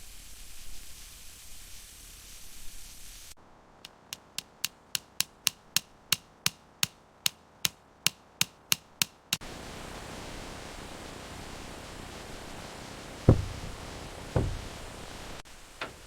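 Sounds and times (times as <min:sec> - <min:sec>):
steady hiss: 0:00.0 - 0:16.0
hammer striking: 0:03.9 - 0:09.4, 0:13.3 - 0:13.8, 0:14.4 - 0:14.8.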